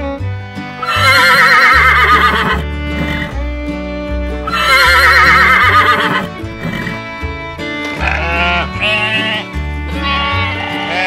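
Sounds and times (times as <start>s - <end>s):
background music with bass line: 0.0s - 11.0s
horse whinnying: 0.8s - 3.4s, 4.4s - 7.1s.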